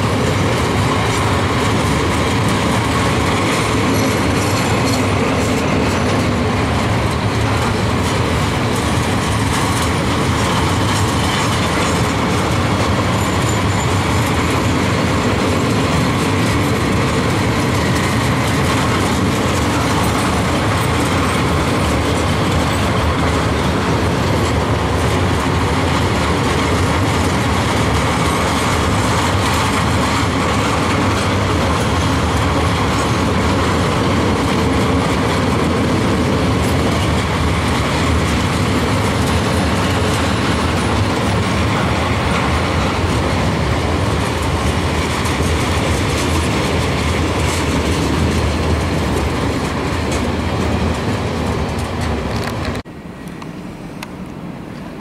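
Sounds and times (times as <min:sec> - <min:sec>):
train wheels clattering on rails: 0:00.0 - 0:55.0.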